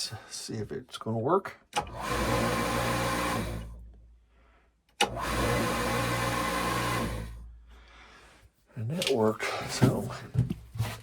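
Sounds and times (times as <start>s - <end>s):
electric pump motor humming: 1.8s - 3.8s, 5.0s - 7.5s
pump switching on click: 5.0s - 5.4s.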